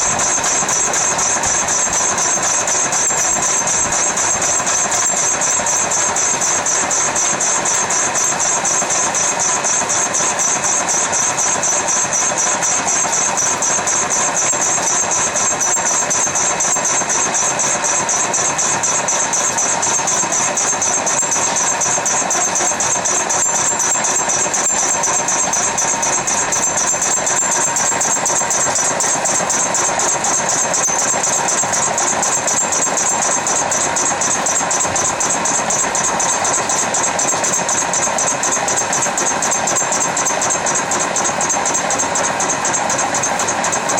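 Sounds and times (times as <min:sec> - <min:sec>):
milling spindle whining: 0:00.0 - 0:43.9.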